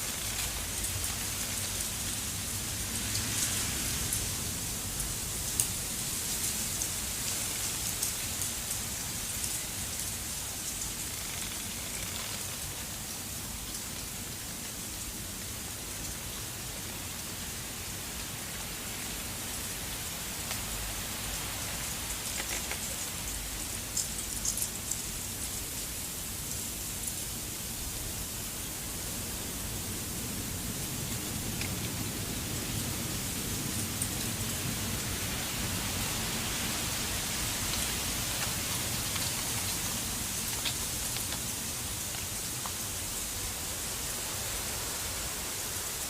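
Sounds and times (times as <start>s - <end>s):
snow pattering on a surface: 35.3s - 45.9s.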